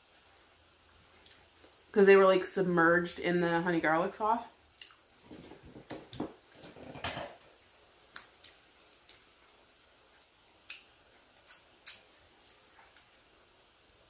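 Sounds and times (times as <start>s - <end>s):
person chewing with closed mouth: 4.8s - 5.0s
lip and tongue clicks: 11.5s - 13.1s.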